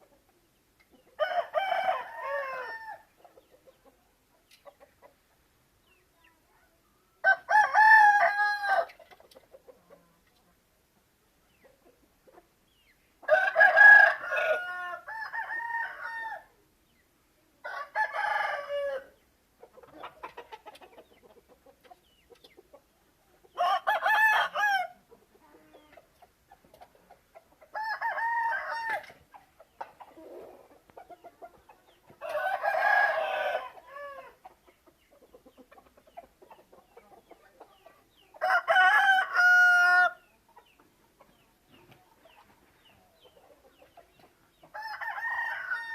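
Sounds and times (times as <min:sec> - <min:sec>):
chickens clucking: 0:00.0 - 0:08.2, 0:08.8 - 0:15.8, 0:18.3 - 0:45.9
chickens crowing: 0:01.0 - 0:03.9, 0:07.2 - 0:10.2, 0:13.2 - 0:16.6, 0:17.6 - 0:41.4, 0:42.3 - 0:45.9.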